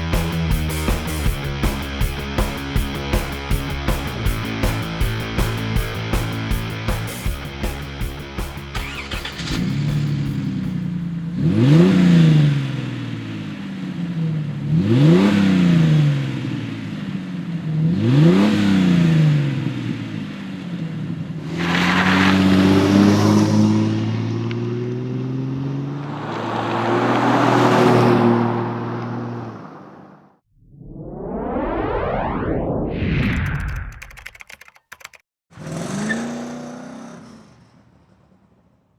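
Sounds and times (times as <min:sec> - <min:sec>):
car engine idling and revving: 0:08.5 - 0:26.0.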